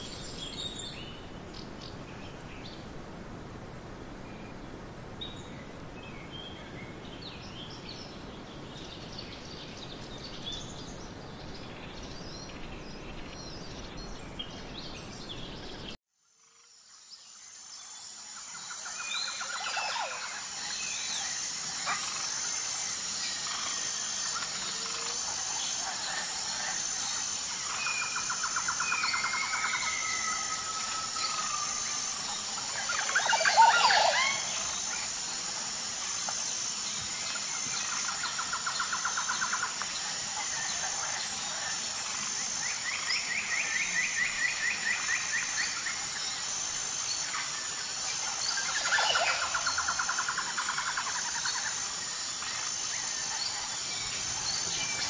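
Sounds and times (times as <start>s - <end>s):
insect chirring: 16.2s - 55.0s
songbirds trilling and whistling: 18.2s - 55.0s.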